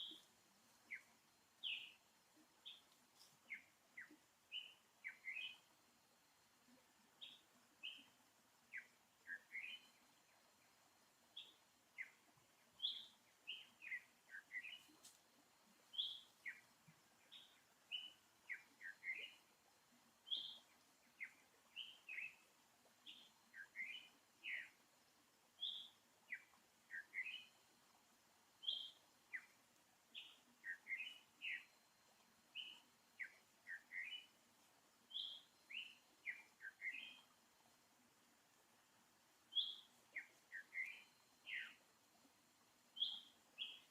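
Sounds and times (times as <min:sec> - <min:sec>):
faint steady high hum: 0:00.0 - 0:43.9
birds chirping: 0:39.5 - 0:41.8.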